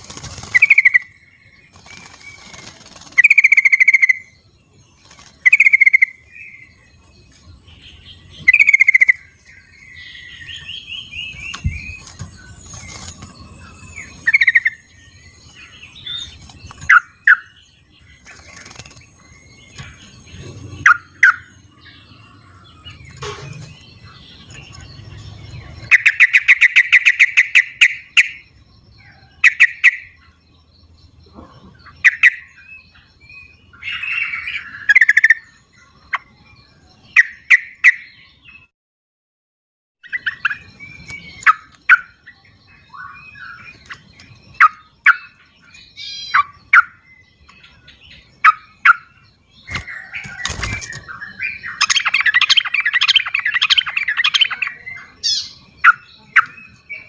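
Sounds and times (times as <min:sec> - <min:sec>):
bulbuls chattering calls: 0:00.0 - 0:04.3, 0:07.8 - 0:28.4, 0:40.1 - 0:57.0.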